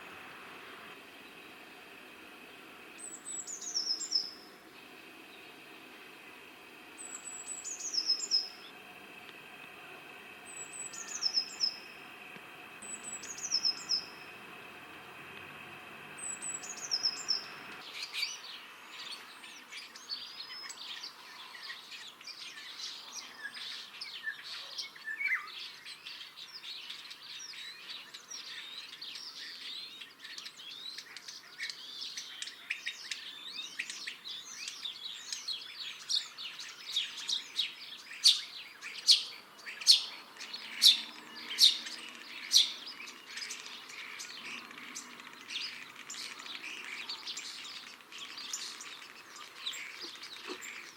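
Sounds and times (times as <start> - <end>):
starling singing: 3.0 - 4.6, 7.0 - 8.8, 10.4 - 12.1, 12.8 - 14.4, 16.2 - 18.5, 28.0 - 50.9
loud sharp bird clicks: 39.8 - 50.9.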